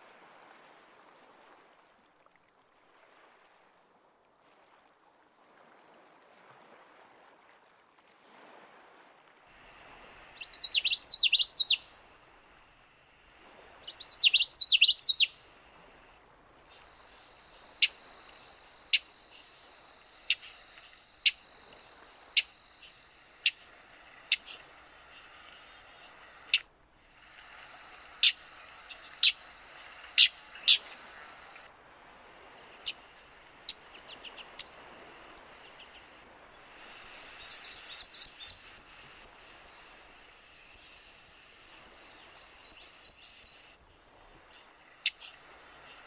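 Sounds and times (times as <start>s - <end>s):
songbird singing: 9.6s - 46.0s
bird chip notes: 10.4s - 11.9s, 13.9s - 15.4s, 36.7s - 43.6s
thin steady high tone: 32.4s - 43.8s.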